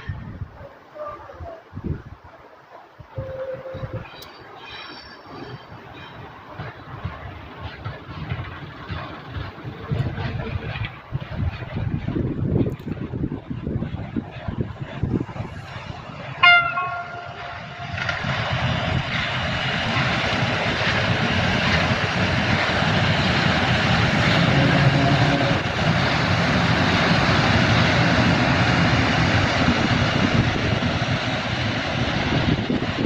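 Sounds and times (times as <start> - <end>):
locomotive horn blast: 3.1 - 4.1, 16.4 - 18.0, 24.4 - 25.8
locomotives rumbling past: 3.2 - 33.0.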